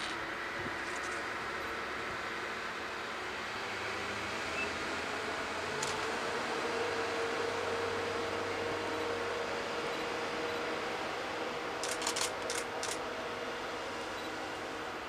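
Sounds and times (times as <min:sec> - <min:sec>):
train mechanical hum: 0:00.0 - 0:15.0
sharp clicks: 0:11.8 - 0:13.0.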